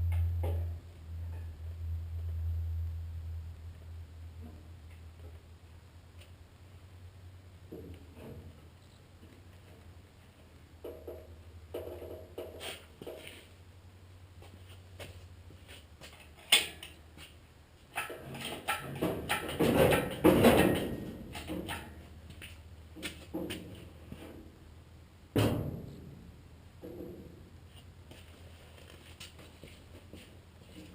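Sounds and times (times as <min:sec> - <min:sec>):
low steady hum: 0:00.0 - 0:30.9
rustling: 0:27.6 - 0:30.9.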